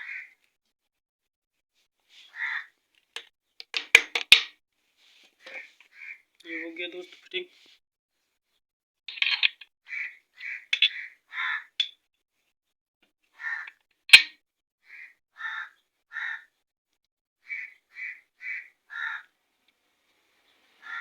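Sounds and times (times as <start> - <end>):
bird harsh calls: 0.0 - 0.4, 2.2 - 2.7, 5.4 - 6.8, 9.9 - 11.8, 13.4 - 13.7, 14.9 - 16.5, 17.4 - 19.3, 20.8 - 21.0.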